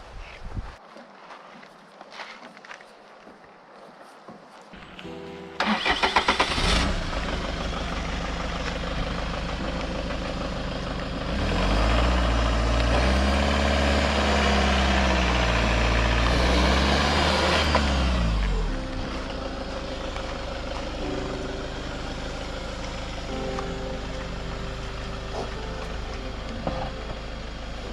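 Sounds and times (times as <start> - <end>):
van engine cranking and starting: 5.6 - 27.9
van engine revving: 5.6 - 27.9.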